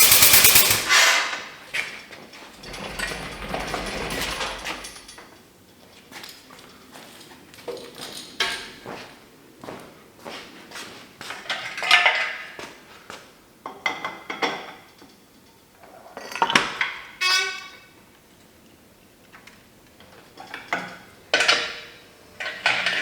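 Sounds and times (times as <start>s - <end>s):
steel chain clanking: 0.0s - 1.0s, 2.6s - 5.2s.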